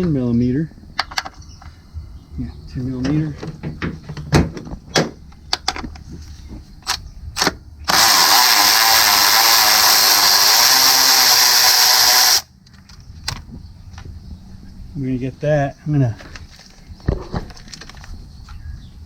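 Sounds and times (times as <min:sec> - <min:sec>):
cordless power tool running: 0:07.9 - 0:12.5.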